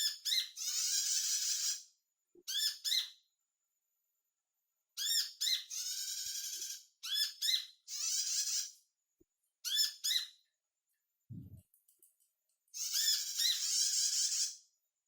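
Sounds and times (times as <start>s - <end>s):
low thump: 11.3s - 11.6s.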